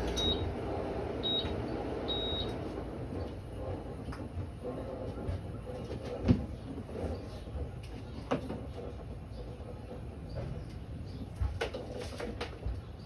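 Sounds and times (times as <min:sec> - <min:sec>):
air conditioner control beeps: 0:00.0 - 0:00.6, 0:01.2 - 0:02.8.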